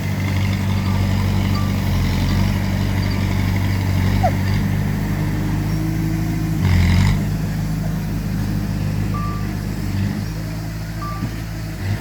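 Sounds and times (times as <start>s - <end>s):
heavy diesel engine running: 0.0s - 12.0s
reversing alarm beep: 0.7s - 3.4s, 9.1s - 9.5s, 11.0s - 11.3s.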